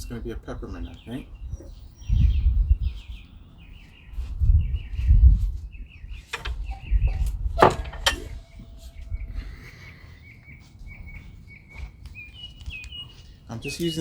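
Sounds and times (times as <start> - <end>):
low microphone rumble: 0.0 - 9.8
songbirds chirping: 0.0 - 14.0.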